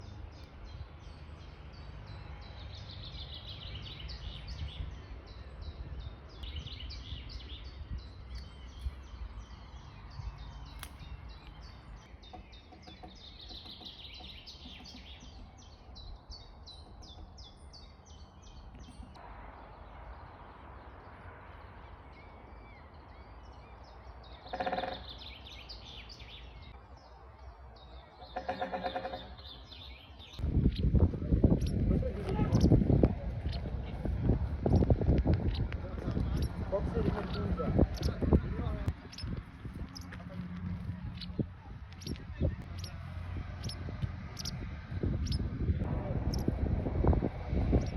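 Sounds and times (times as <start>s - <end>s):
low background rumble: 30.2s - 47.9s.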